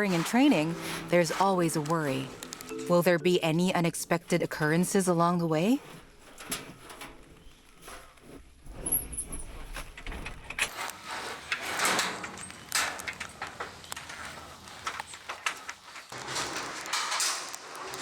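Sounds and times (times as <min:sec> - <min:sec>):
doors and latches clicking and rattling: 0:09.7 - 0:18.0.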